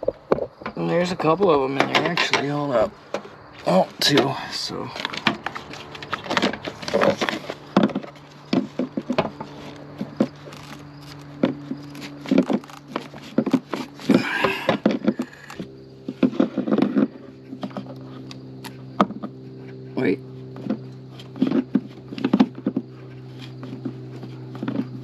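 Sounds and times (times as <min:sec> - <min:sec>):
steady low hum: 0:00.0 - 0:25.0
tools clicking and clattering: 0:01.8 - 0:03.2.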